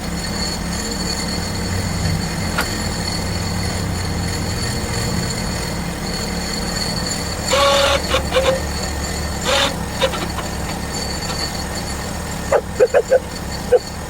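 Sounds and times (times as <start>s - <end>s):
bandsaw mill running: 0.0s - 14.0s
short squeaks: 6.2s - 14.0s.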